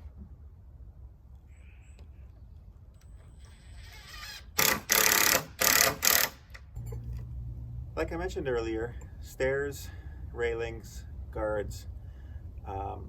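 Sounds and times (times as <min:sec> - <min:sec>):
power tool bursts: 0:03.6 - 0:06.7.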